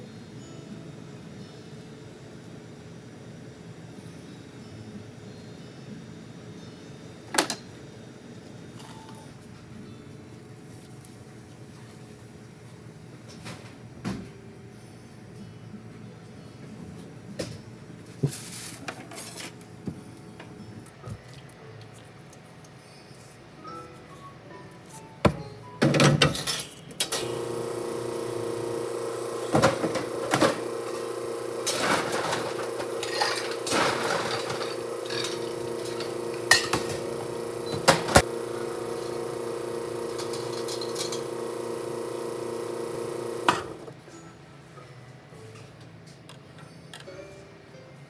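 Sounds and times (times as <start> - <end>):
kitchen appliance motor humming: 27.1 - 44.0.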